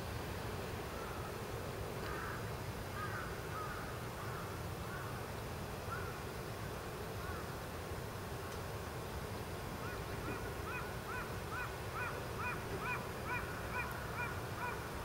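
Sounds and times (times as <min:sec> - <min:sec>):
faint short bird calls: 0:02.1 - 0:05.2, 0:09.8 - 0:15.0.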